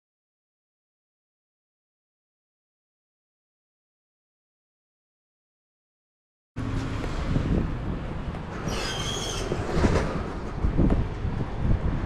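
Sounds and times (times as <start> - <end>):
road and wind noise: 6.6 - 12.0
brief high squeal: 8.6 - 9.6.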